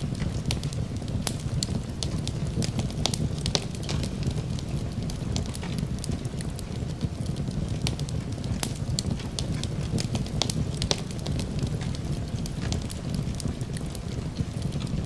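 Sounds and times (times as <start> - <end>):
fire crackling and popping: 0.0 - 15.0
low rumble of burning logs: 0.0 - 15.0.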